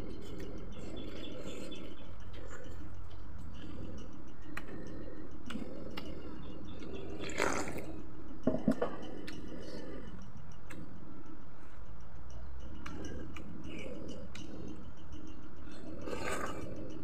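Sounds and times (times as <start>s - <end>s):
person chewing fried chicken: 7.2s - 7.9s.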